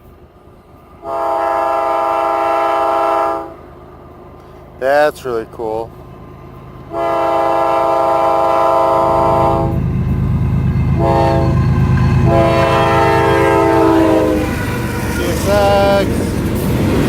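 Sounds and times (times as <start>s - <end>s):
train rumbling: 0.0s - 17.0s
locomotive air horn blasts: 1.0s - 3.6s, 6.9s - 9.8s, 10.8s - 16.3s.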